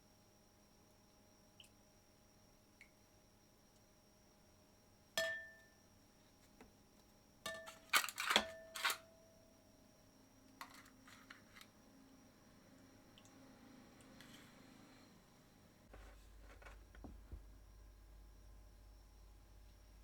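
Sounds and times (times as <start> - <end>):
tableware clinking: 5.2 - 5.6, 7.5 - 9.0.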